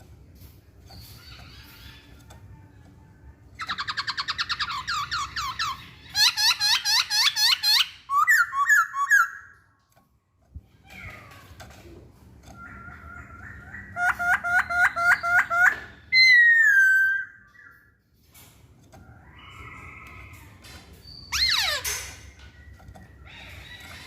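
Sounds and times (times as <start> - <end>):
bird chirping rapidly: 3.6 - 9.6, 12.6 - 17.8.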